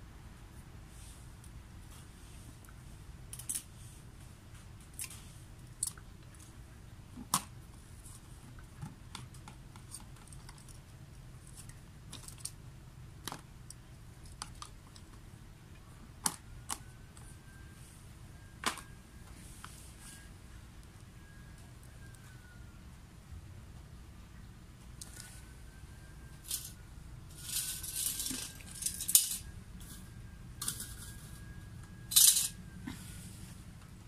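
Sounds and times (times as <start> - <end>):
low steady hum: 0.0 - 34.0
faint thin whistle: 16.8 - 20.4, 21.1 - 22.8, 25.0 - 27.6.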